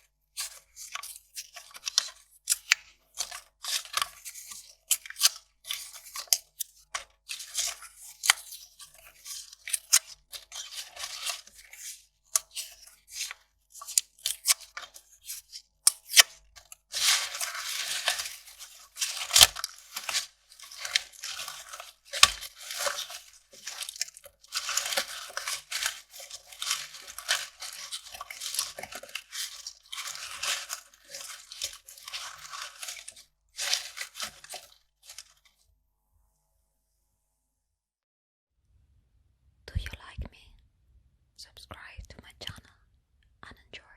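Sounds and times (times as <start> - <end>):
paper crackling and crumpling: 0.0 - 35.6
paper ripping: 16.9 - 35.4.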